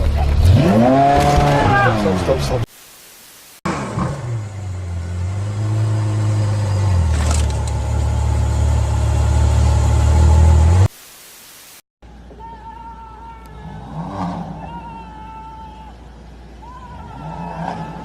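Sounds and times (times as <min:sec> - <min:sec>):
car engine deep rumble: 0:03.7 - 0:10.9, 0:13.4 - 0:18.0.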